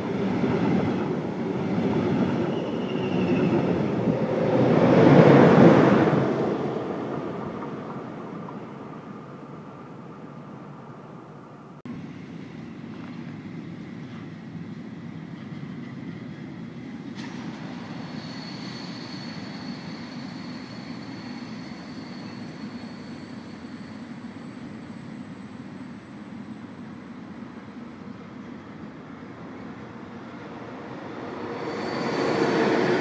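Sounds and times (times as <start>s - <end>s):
freight train rumbling on rails: 0.0s - 33.0s
high wheel squeal: 2.4s - 4.6s, 17.6s - 28.2s, 30.6s - 33.0s.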